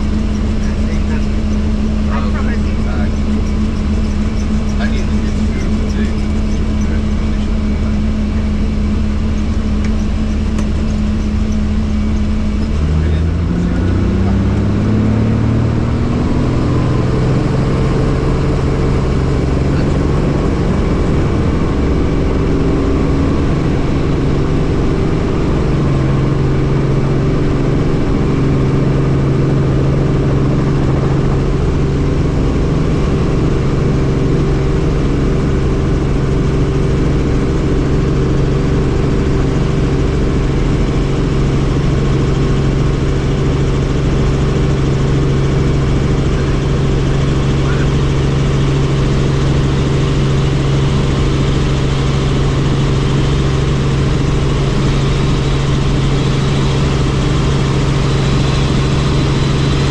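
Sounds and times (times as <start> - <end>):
helicopter engine and rotor: 0.0 - 59.9.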